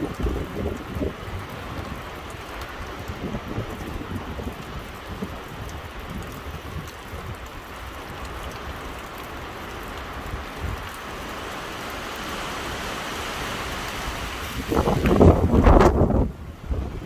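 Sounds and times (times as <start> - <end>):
storm wind rushing: 10.3 - 17.0.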